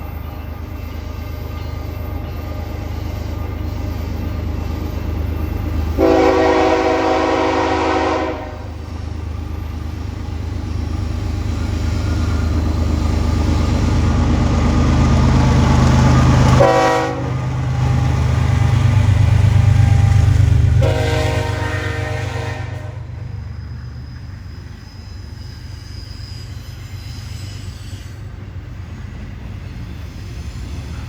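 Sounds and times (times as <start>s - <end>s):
diesel locomotive engine rumble: 0.0s - 31.0s
multi-note air horn blasts: 6.0s - 8.7s, 16.6s - 17.3s, 20.8s - 23.1s.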